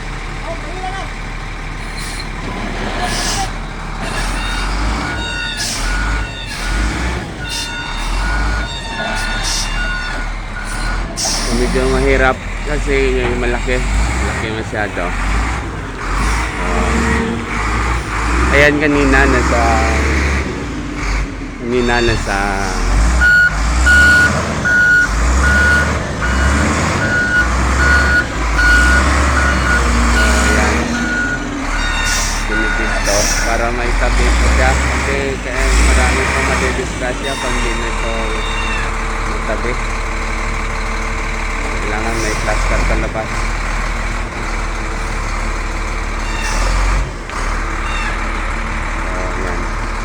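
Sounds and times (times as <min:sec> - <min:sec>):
diesel engine rumble: 0:00.0 - 0:50.0
reversing alarm beeping: 0:04.1 - 0:15.3, 0:16.0 - 0:20.4, 0:21.7 - 0:39.7.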